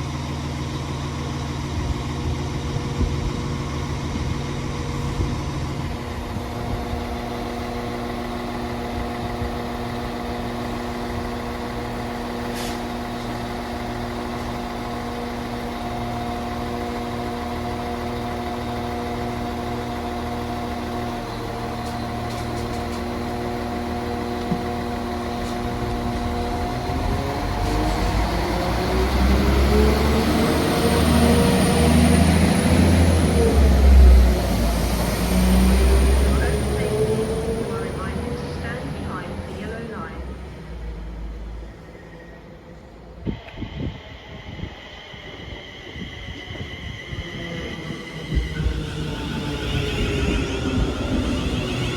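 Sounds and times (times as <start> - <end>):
heavy low train rumble: 0.0 - 51.9
train humming and pulling away: 0.0 - 51.9.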